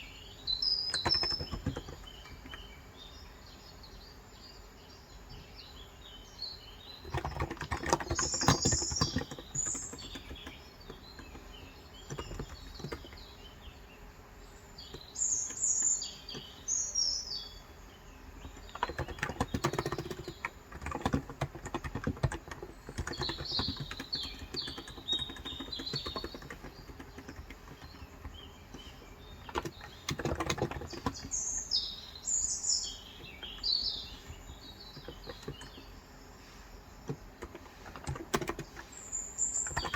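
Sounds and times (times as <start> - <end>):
small birds chirping: 0.0 - 39.9
keyboard typing: 0.9 - 2.7, 7.0 - 13.3, 18.4 - 31.7, 33.0 - 36.0, 37.0 - 39.9.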